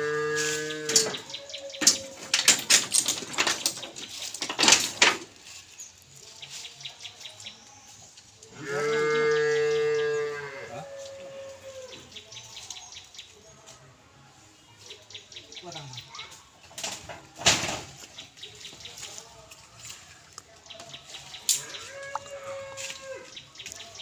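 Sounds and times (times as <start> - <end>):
sharp knocks and clatter: 0.9 - 5.3
cow mooing: 8.6 - 10.8.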